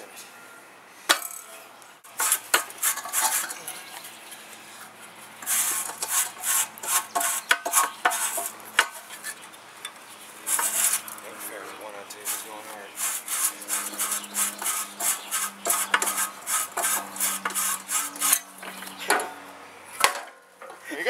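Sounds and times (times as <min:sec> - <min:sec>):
sharp metal knocks: 0:01.1 - 0:01.5, 0:20.0 - 0:20.8.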